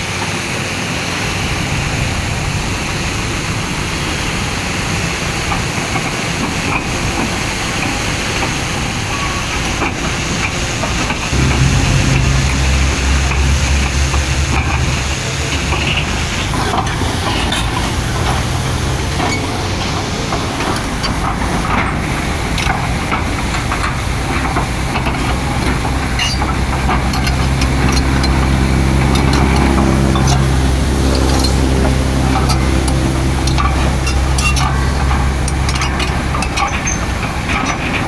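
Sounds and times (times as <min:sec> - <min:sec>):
machinery clanks and rattles: 0:11.3 - 0:18.5
diesel engine drone: 0:11.3 - 0:38.0.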